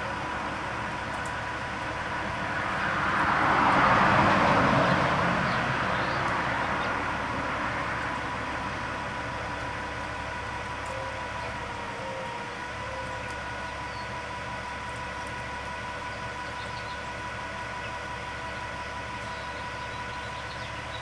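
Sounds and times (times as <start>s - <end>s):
vehicle passing by: 2.0s - 9.3s.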